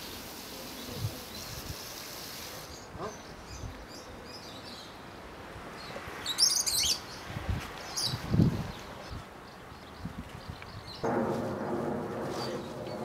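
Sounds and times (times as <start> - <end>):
birds chirping: 0.7 - 11.1.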